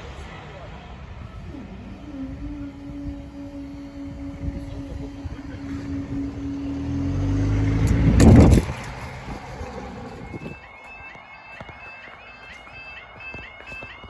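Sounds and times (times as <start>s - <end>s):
train rumbling past: 0.0s - 10.7s
steady tone: 1.0s - 12.9s.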